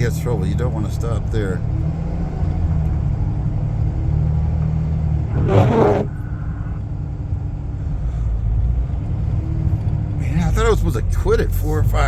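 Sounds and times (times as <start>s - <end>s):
vehicle engine and road rumble: 0.0s - 12.0s
brief rushing noise: 5.3s - 6.6s.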